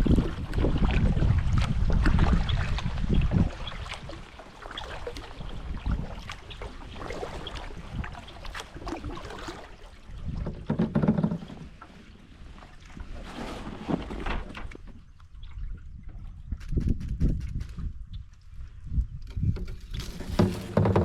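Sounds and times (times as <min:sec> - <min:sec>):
water splashing: 0:00.0 - 0:14.3
paddle strokes in water: 0:00.0 - 0:16.5, 0:18.3 - 0:21.0.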